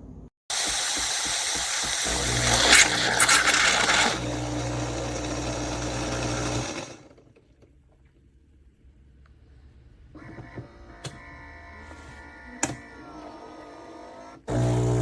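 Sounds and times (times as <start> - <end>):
espresso machine motor whirring: 0.5 - 7.1, 14.2 - 15.0.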